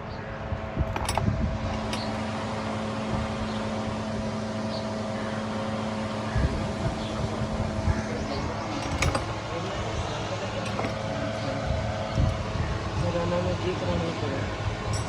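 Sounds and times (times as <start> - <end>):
steady mechanical hum: 0.0 - 15.0
sharp metallic clicks: 8.7 - 9.4.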